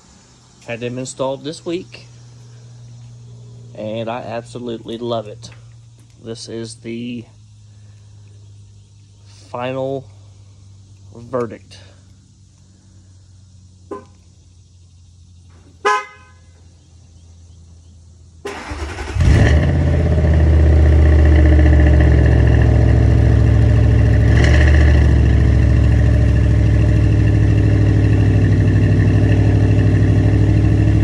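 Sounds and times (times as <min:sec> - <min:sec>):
car engine starting and idling: 0:18.0 - 0:31.0.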